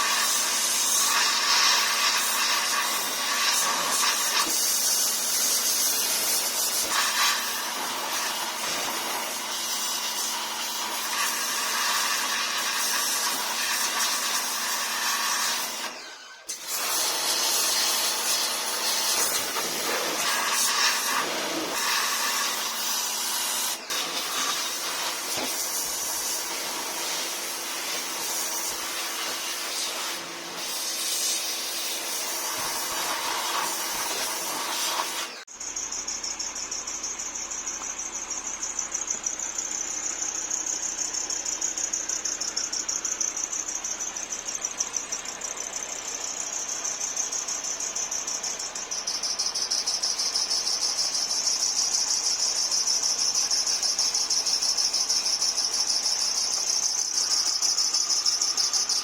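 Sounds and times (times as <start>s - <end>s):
crickets chirping: 0.0s - 15.6s, 16.8s - 59.0s
steady hiss: 16.8s - 35.4s.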